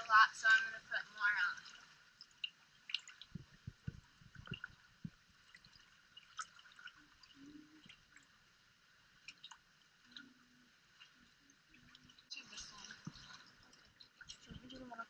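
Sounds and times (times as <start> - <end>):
soft low thumps: 3.2 - 5.4.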